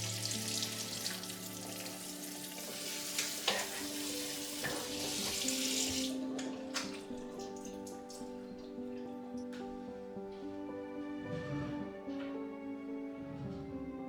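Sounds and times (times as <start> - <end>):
food sizzling in a pan: 0.0 - 6.1
soft instrumental music: 0.0 - 14.0.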